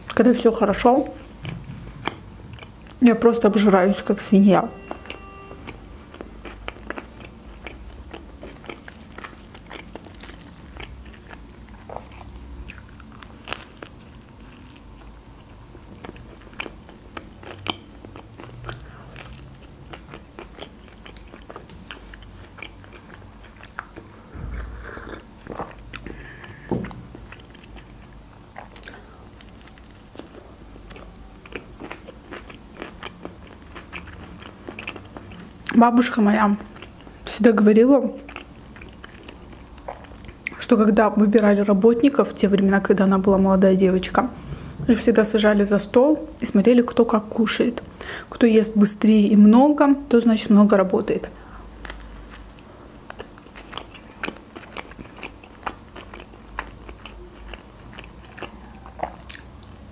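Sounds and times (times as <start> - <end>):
crisp chewing crunches: 5.0 - 37.5, 38.1 - 40.7, 51.3 - 59.9.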